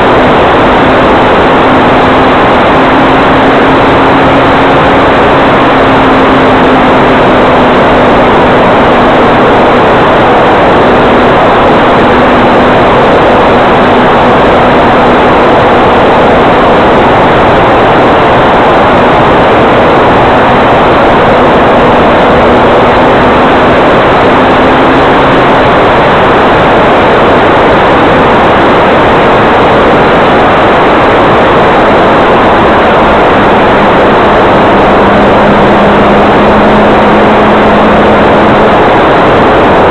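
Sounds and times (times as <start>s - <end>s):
propeller rushing noise: 0.0s - 39.9s
electric motor hum: 31.8s - 39.9s.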